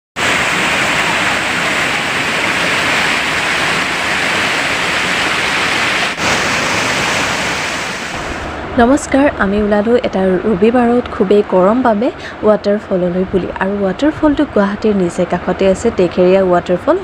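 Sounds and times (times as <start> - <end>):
waterfall rushing: 0.2 - 8.7.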